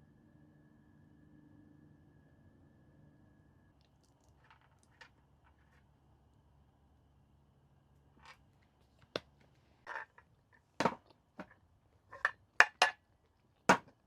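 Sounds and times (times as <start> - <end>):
objects knocking and clattering: 9.9 - 10.2, 10.8 - 13.0, 13.7 - 14.0.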